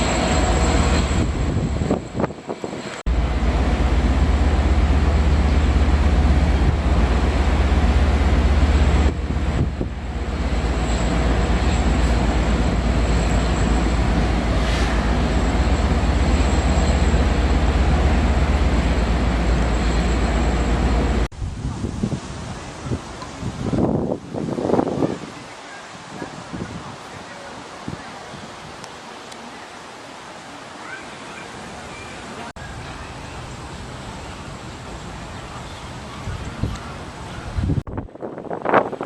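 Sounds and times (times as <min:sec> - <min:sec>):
storm wind blasting microphone: 0:00.0 - 0:28.8, 0:35.9 - 0:39.0.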